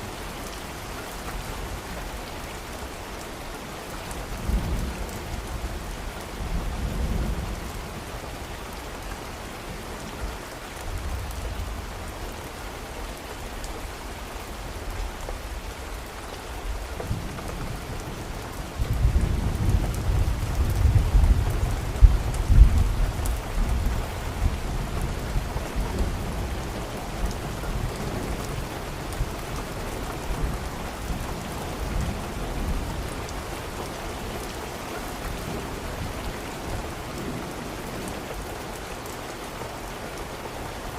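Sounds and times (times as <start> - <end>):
steady rain falling: 0.0 - 40.9
low roll of thunder: 18.7 - 26.6.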